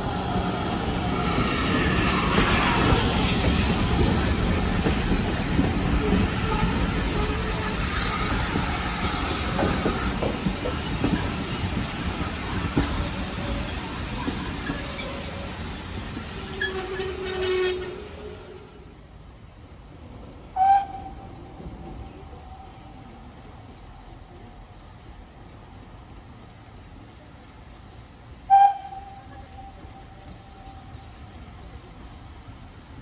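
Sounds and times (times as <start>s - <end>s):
train rumbling and clattering: 0.0s - 33.0s
high wheel squeal: 0.1s - 11.7s, 12.4s - 19.0s.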